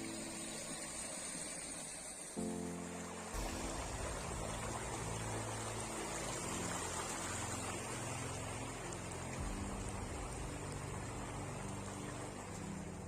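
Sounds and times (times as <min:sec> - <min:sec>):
steady rushing noise: 0:01.2 - 0:13.0.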